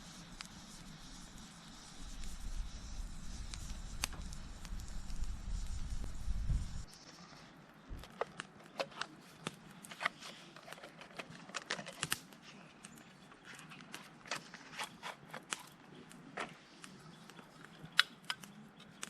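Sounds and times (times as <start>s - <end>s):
sharp clicks and ticks: 2.1s - 7.0s.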